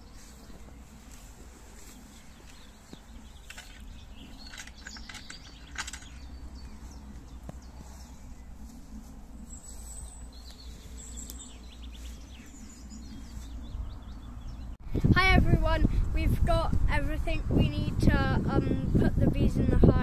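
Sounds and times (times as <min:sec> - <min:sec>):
small birds chirping: 0:00.0 - 0:14.8.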